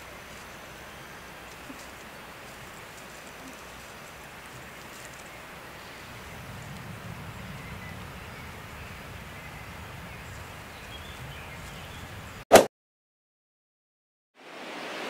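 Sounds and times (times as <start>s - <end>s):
low rumble: 5.8s - 12.4s.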